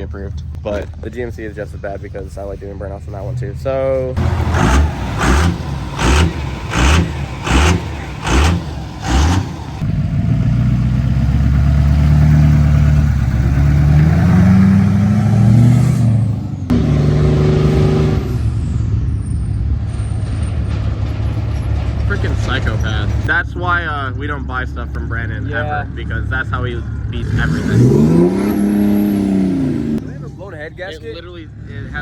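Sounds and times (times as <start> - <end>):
steady engine sound: 4.2 - 17.3
diesel engine revving: 4.2 - 32.0.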